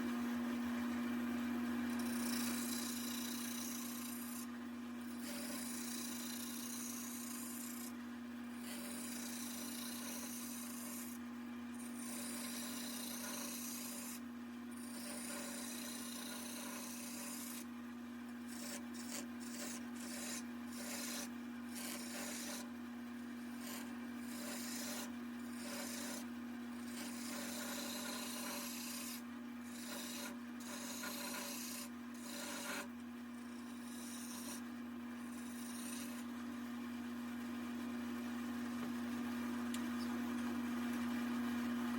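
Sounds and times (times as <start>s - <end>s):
tool scraping spinning wood: 0.9s - 37.3s
wood lathe motor humming: 1.0s - 36.7s.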